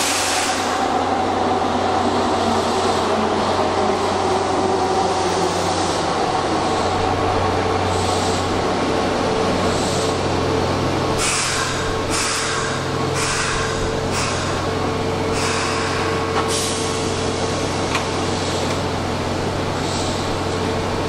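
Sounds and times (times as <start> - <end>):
short hisses of air: 0.0 - 0.8
train rumbling in tunnel: 0.0 - 21.0.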